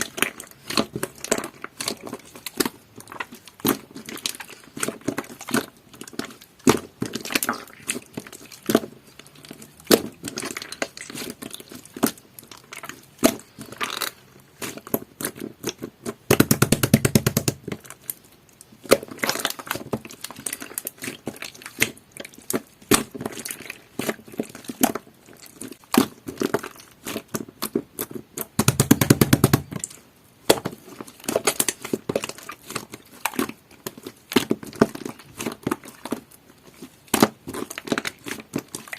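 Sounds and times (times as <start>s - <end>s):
slime squished by hand popping: 13.2s - 18.0s, 28.4s - 33.5s.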